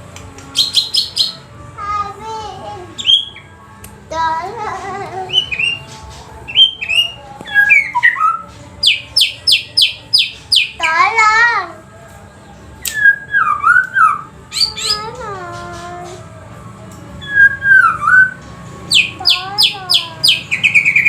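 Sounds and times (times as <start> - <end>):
bird singing whistles: 3.0 - 3.5, 6.5 - 10.8, 12.8 - 15.0, 17.2 - 21.0.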